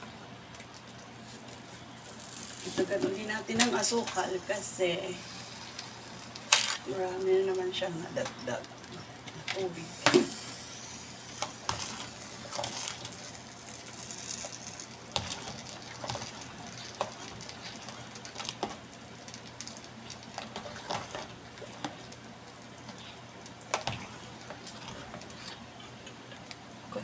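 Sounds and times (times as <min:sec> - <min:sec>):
low hiss: 0:01.5 - 0:20.4.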